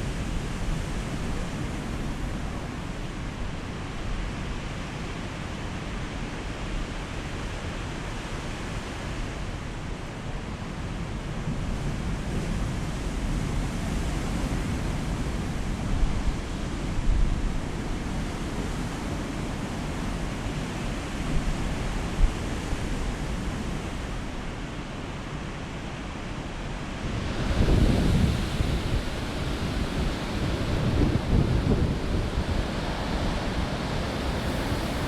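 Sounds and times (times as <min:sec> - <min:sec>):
surf waves breaking: 0:26.1 - 0:35.0
wind on microphone: 0:26.9 - 0:35.0.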